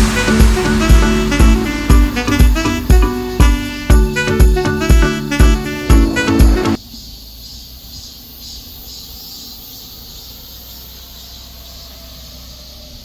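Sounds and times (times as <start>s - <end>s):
low rumble: 0.0s - 6.6s
high even hiss: 0.0s - 6.8s.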